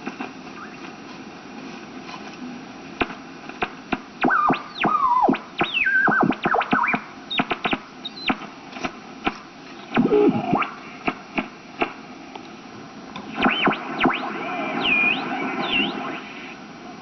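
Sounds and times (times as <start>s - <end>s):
radio static with crackles: 0.0s - 12.2s, 12.9s - 17.0s
squealing radio whistles: 13.4s - 16.6s.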